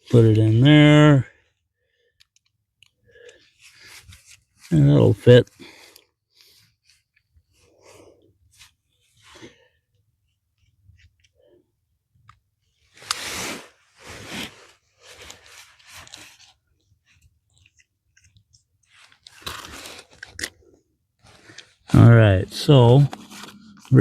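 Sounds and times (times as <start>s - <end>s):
plastic scraping and rustling: 12.9s - 24.0s.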